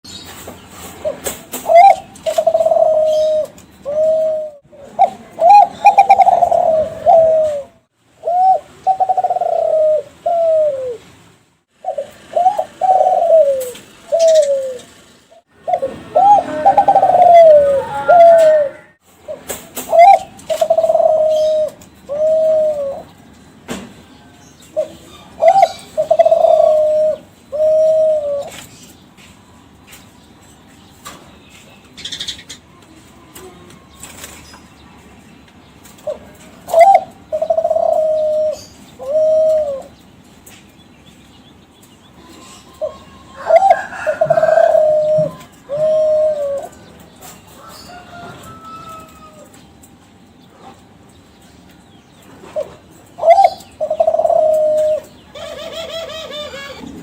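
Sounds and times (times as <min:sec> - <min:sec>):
spotted dove cooing: 0:01.0 - 0:11.0, 0:11.8 - 0:15.0, 0:15.6 - 0:19.0, 0:19.9 - 0:23.1, 0:24.8 - 0:28.6, 0:36.0 - 0:39.9, 0:42.3 - 0:46.8, 0:52.4 - 0:57.0.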